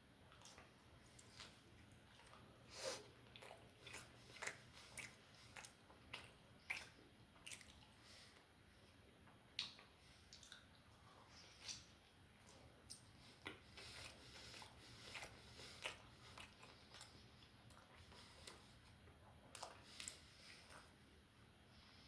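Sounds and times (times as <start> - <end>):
person chewing: 0.3 - 8.4, 9.2 - 21.0
wet mouth smacks and clicks: 9.6 - 10.7, 11.6 - 12.0.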